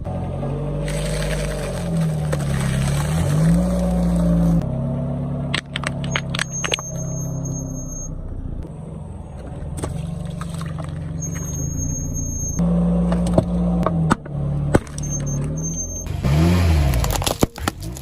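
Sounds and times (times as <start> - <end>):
objects cracking under tyres: 0.8 - 4.6, 5.5 - 7.0, 16.5 - 18.0.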